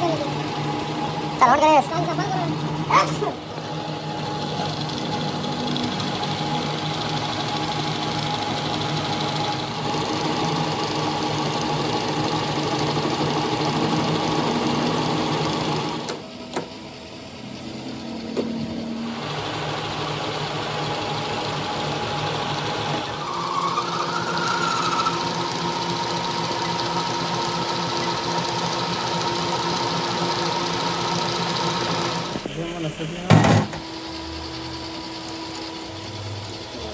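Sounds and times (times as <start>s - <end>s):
workshop machine humming: 0.0s - 36.9s
wavering whine: 16.2s - 33.2s.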